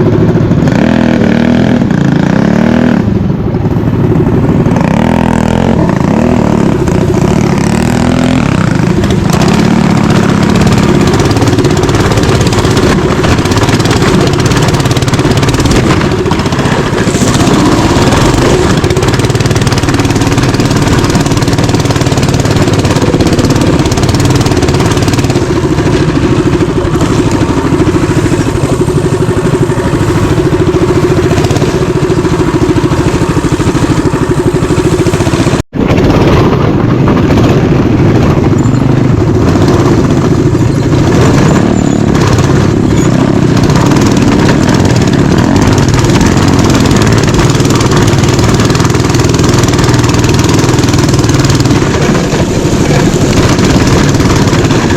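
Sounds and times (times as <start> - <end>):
mini bike engine running: 0.0 - 54.9.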